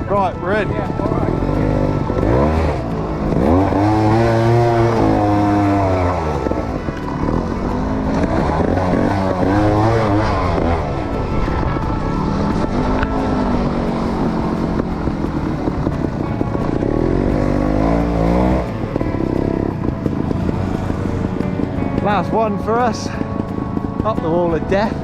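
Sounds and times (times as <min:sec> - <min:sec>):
motorbike engine revving: 0:00.0 - 0:25.0.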